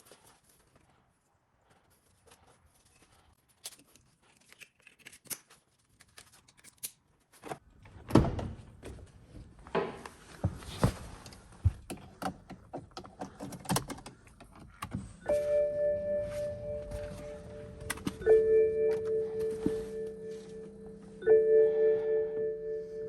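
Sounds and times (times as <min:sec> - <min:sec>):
steady multi-pitch ringing tone: 0:15.2 - 0:23.0.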